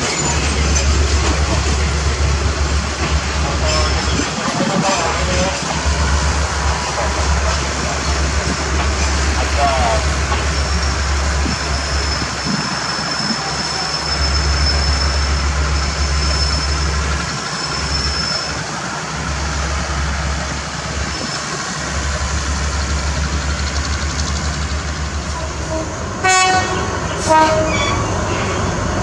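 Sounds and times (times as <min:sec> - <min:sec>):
train coaches rumbling past: 0:00.0 - 0:29.0.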